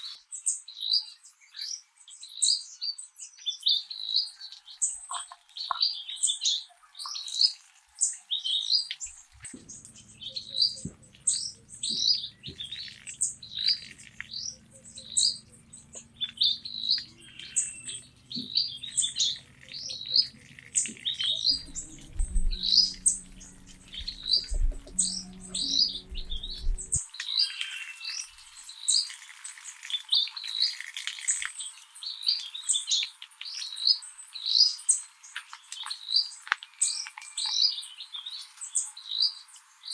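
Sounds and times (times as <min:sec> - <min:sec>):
birds chirping: 0:03.9 - 0:27.0
low hum and rumble: 0:09.1 - 0:27.0.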